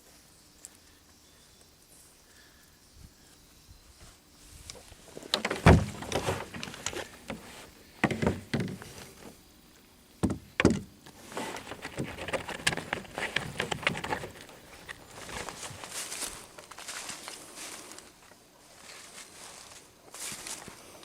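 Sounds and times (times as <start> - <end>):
light clicks and rustling: 4.6 - 9.4, 10.6 - 17.4
heavy thump: 5.4 - 6.5
knocks: 10.2 - 10.9.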